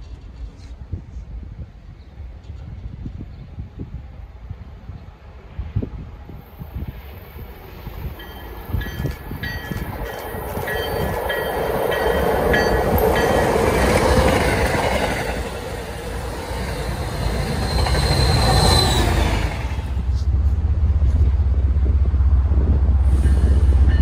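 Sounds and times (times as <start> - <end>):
train engine and wheels rumbling: 0.0 - 24.0.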